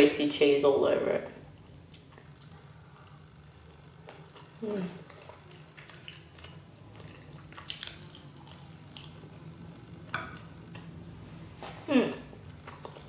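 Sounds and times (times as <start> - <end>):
wet chewing of food: 1.6 - 11.1, 12.2 - 13.0.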